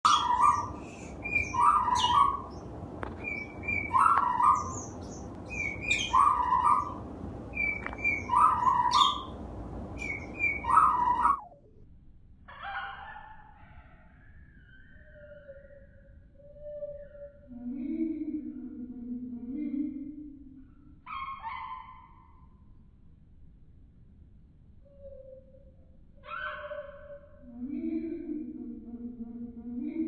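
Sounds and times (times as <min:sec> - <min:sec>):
bird chirping call: 0:00.0 - 0:09.4, 0:10.0 - 0:11.6.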